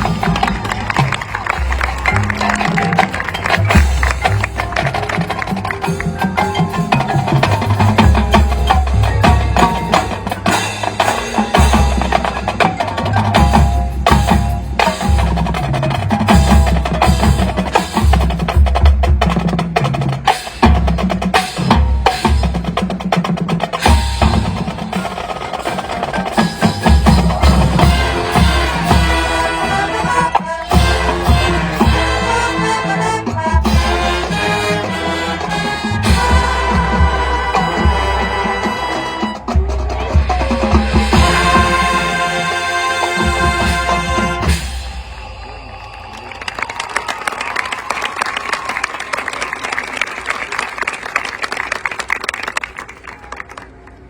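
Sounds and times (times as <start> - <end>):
mallet keyboards and chimes: 0.0 - 15.5
snare and bass drums: 0.0 - 45.2
sustained brass and woodwind notes: 23.8 - 46.5.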